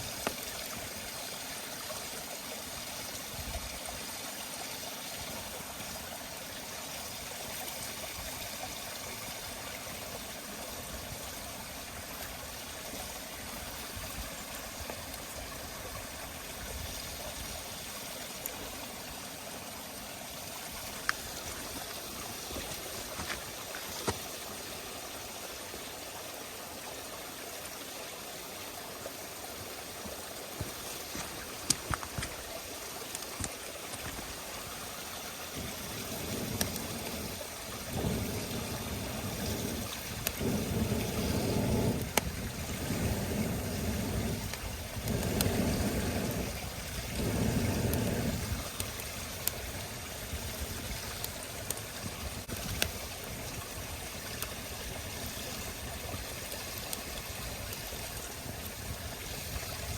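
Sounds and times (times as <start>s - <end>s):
campfire crackling and popping: 0.0s - 0.8s, 35.5s - 58.9s.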